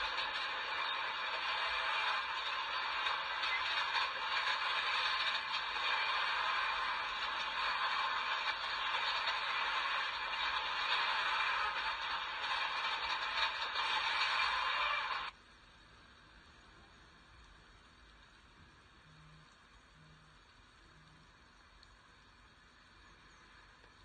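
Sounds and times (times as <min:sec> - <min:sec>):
steel wheels rattling on rails: 0:00.0 - 0:15.4.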